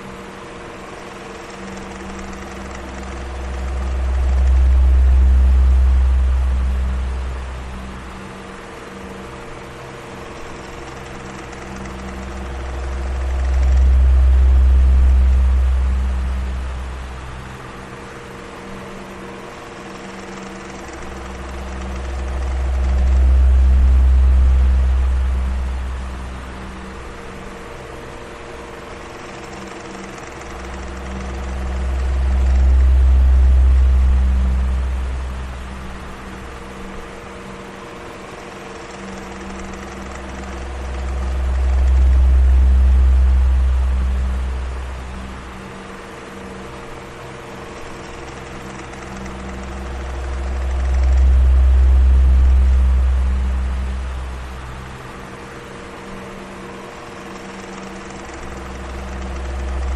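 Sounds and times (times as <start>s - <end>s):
electric fan running: 0.0s - 59.9s
deep low rumble: 2.2s - 8.2s, 11.0s - 17.7s, 20.6s - 27.7s, 30.4s - 37.1s, 39.2s - 45.8s, 48.0s - 55.6s.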